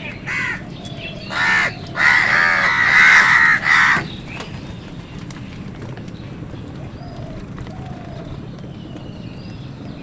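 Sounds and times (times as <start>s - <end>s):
crows cawing: 0.0s - 4.2s.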